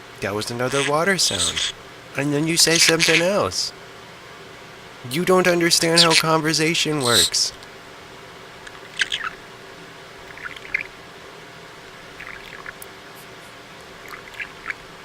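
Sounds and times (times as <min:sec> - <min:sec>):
talking bird chirping and clicking: 0:00.7 - 0:01.7, 0:08.6 - 0:09.4, 0:10.3 - 0:10.9, 0:12.2 - 0:12.9, 0:14.0 - 0:14.8.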